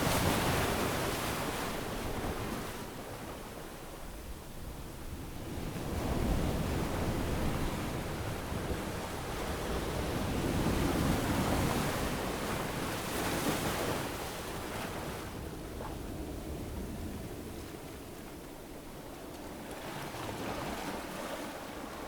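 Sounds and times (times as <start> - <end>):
ocean waves on beach: 16.2 - 22.0.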